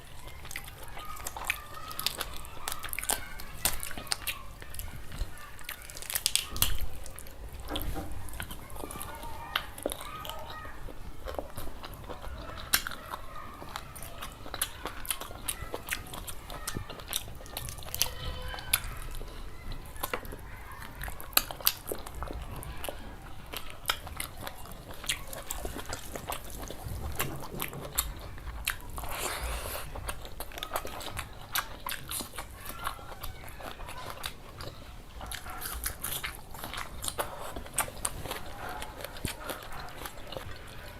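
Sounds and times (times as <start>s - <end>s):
person chewing food: 0.0s - 40.9s
wet mouth noises: 23.5s - 32.6s, 33.6s - 40.8s.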